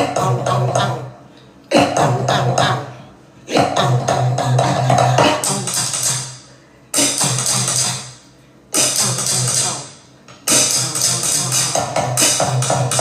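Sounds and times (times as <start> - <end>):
drum groove: 7.0 - 8.0, 8.8 - 13.0.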